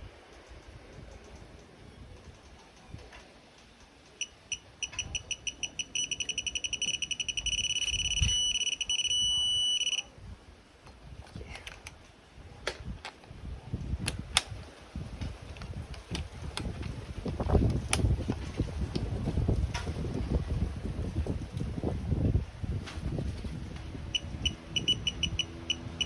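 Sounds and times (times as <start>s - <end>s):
tool handling clicks: 4.2s - 10.0s, 10.9s - 13.4s, 14.0s - 14.6s
torque wrench beeping: 4.2s - 10.1s, 24.1s - 26.0s.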